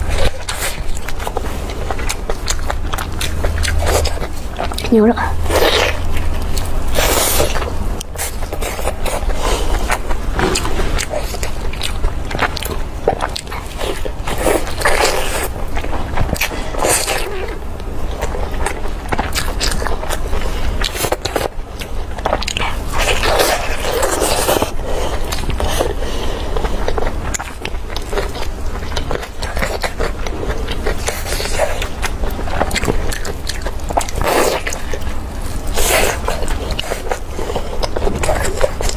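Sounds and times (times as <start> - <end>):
steady low hum: 0.0 - 16.8
chewing and biting food: 0.0 - 38.9.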